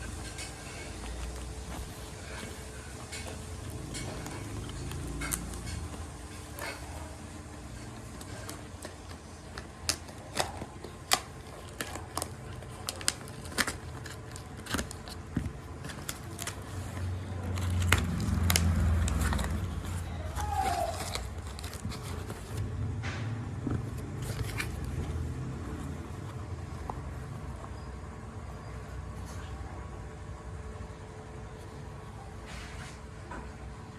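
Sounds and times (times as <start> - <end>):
packaging crackling and opening: 7.8 - 27.2.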